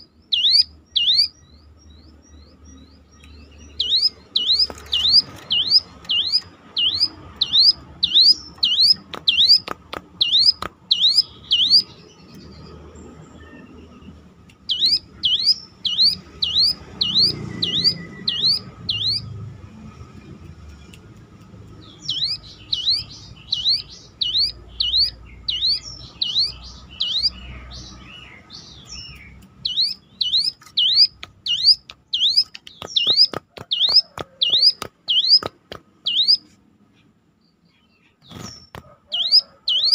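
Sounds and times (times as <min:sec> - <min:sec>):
bird calling siren-like note: 0:39.1 - 0:39.9.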